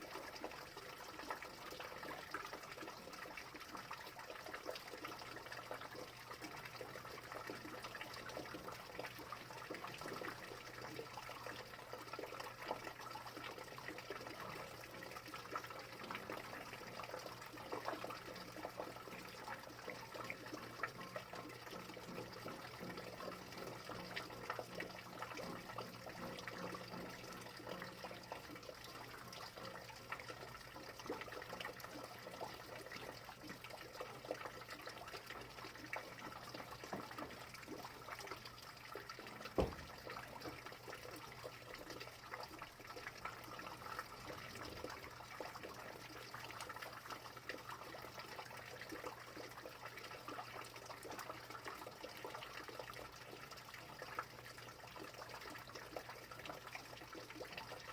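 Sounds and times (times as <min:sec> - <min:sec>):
sharp knock: 0:39.6 - 0:39.9.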